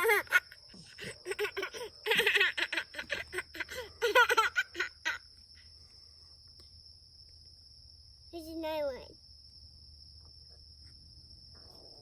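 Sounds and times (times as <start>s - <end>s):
young child giggling: 0.0s - 5.4s.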